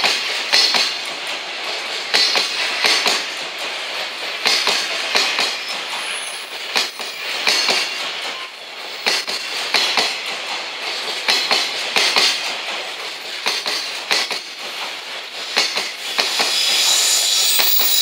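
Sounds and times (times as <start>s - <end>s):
train wheels clacking over rail joints: 0.0s - 18.0s
rolling noise hiss: 11.6s - 18.0s.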